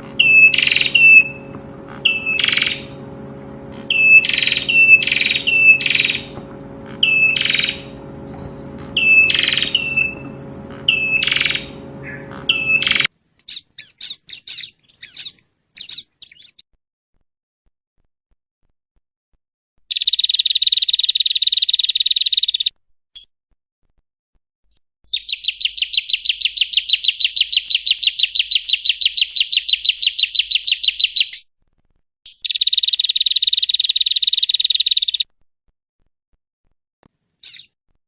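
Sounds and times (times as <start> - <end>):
steady low hum: 0.0 - 13.1
bird calling sharp notes: 0.0 - 16.6, 25.1 - 31.4
short high chirps: 7.0 - 13.1.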